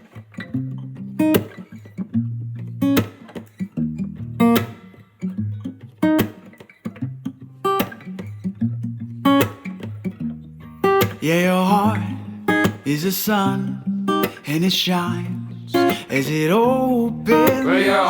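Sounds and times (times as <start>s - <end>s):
strummed acoustic guitar: 0.0s - 18.0s
person counting in: 17.3s - 18.0s.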